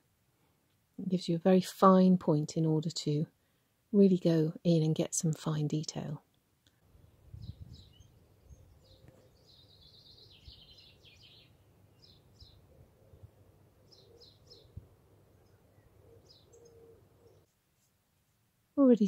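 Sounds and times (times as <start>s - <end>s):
faint bird chirps: 7.0s - 17.5s.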